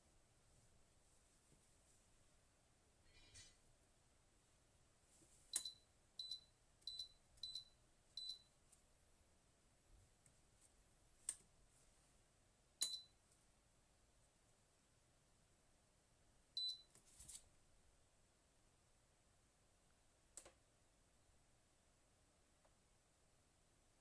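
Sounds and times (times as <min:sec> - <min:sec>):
kettle control panel beeps: 0:05.5 - 0:08.5, 0:12.8 - 0:13.2, 0:16.6 - 0:16.9.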